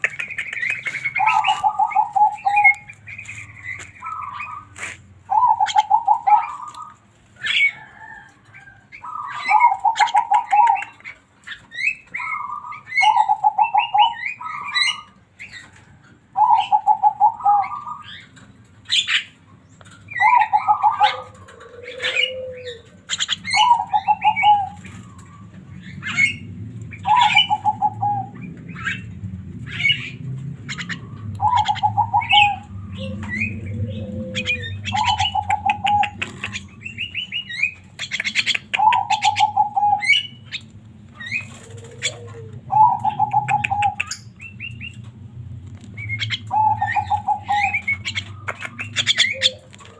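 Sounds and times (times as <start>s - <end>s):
sharp bird clicks: 0.0s - 5.0s, 34.9s - 39.5s, 47.5s - 49.6s
high bird chirps: 0.0s - 7.8s, 22.7s - 45.1s, 46.0s - 49.6s
myna bird singing: 0.0s - 49.9s.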